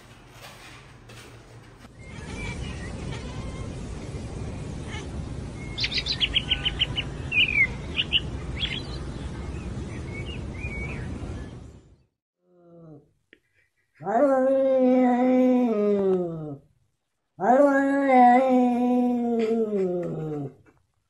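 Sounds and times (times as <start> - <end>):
low outdoor background noise: 1.6 - 12.1
small birds chirping: 1.9 - 12.1.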